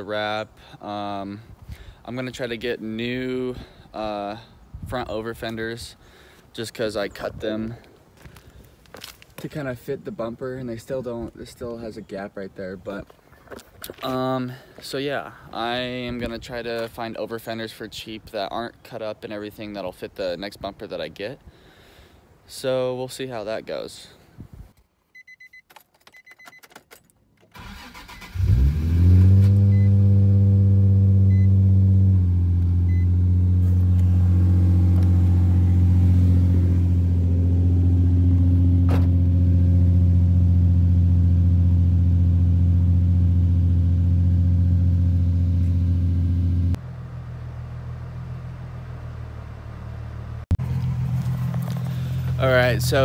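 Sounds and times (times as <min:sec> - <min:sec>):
short beeps: 0:25.1 - 0:26.7, 0:31.3 - 0:31.6, 0:32.9 - 0:33.2
car engine starting and idling: 0:27.4 - 0:53.0.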